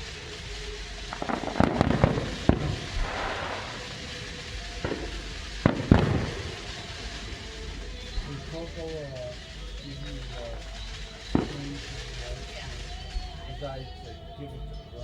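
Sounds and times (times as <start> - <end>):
crackle of small reports: 0.0 - 15.0
distant fireworks bangs: 0.0 - 15.0
loud booms with low rumble: 0.0 - 15.0.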